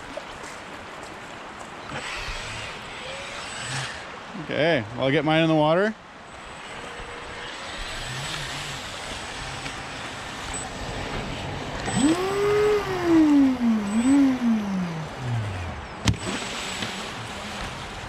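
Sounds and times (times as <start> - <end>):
rushing river water: 0.0 - 18.0
electric motor whining: 1.8 - 4.3, 6.3 - 18.0.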